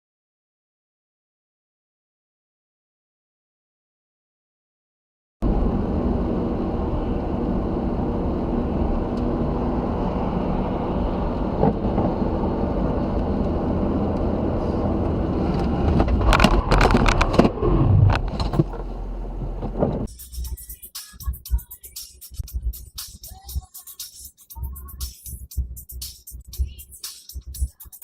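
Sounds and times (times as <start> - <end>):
car road and engine noise: 5.4 - 20.6.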